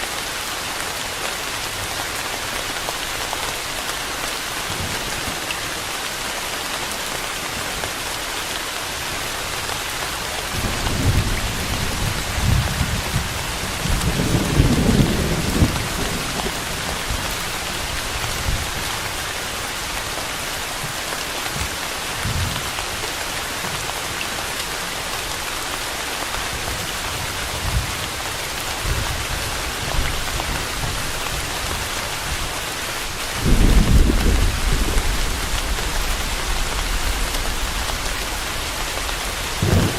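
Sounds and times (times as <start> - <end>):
rain hissing: 0.0 - 39.9
thunder rolling: 10.6 - 18.7, 33.3 - 39.9.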